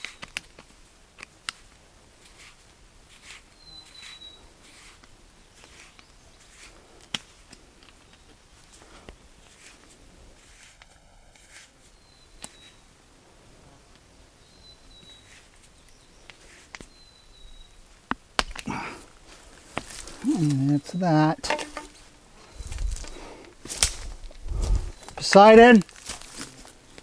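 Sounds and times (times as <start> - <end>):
faint clicks and knocks: 21.5 - 22.0.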